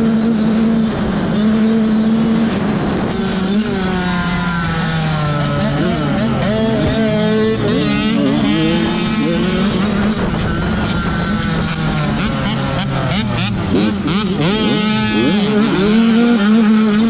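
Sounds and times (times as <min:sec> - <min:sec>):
motocross bike engines racing: 0:00.0 - 0:17.0.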